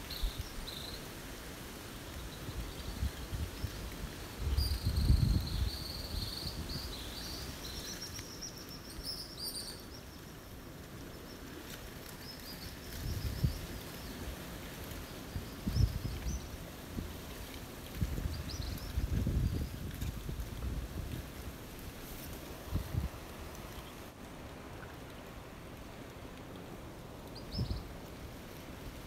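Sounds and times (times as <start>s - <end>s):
wind gusts on microphone: 2.2s - 7.8s, 12.6s - 24.5s, 26.8s - 29.0s.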